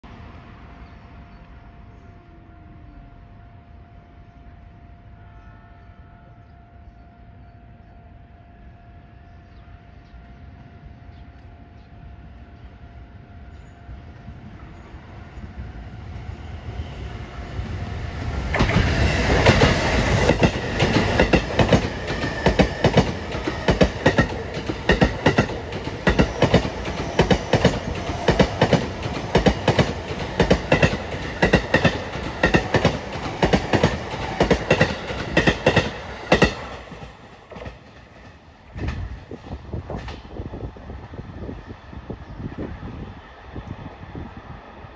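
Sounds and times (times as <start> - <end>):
electric train passing: 0.0 - 44.9
wheels clacking over rail joints: 18.4 - 39.3.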